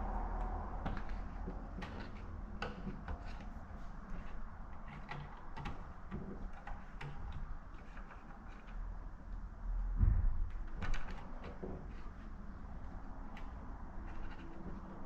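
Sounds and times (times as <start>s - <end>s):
low steady hum: 8.8s - 15.0s.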